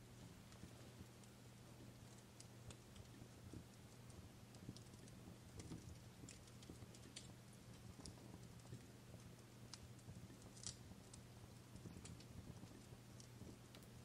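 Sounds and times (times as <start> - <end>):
fire crackling and popping: 0.0 - 14.0
steady low hum: 0.0 - 14.0.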